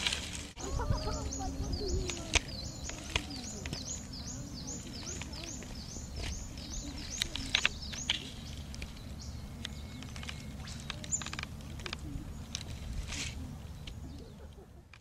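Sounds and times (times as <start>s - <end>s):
low outdoor rumble: 0.0s - 15.0s
small birds chirping: 0.0s - 15.0s
sharp clicks: 6.2s - 12.7s.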